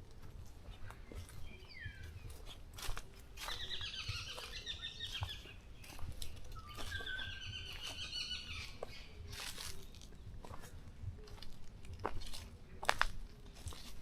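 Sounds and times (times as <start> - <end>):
songbird twittering: 0.8 - 10.6.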